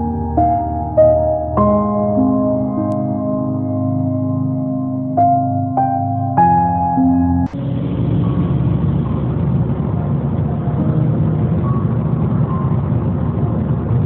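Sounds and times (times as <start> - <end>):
road noise: 4.6 - 14.0
vehicle engine rumble: 7.4 - 14.0.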